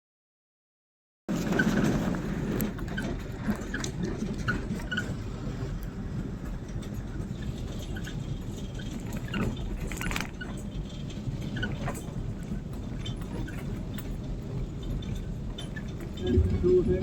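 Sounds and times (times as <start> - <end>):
rain rumble: 16.2 - 17.0.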